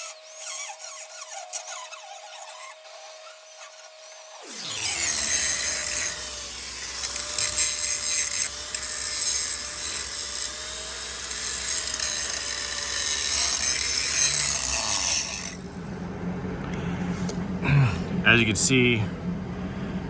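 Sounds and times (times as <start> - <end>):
angle grinder grinding steel: 0.0 - 15.6.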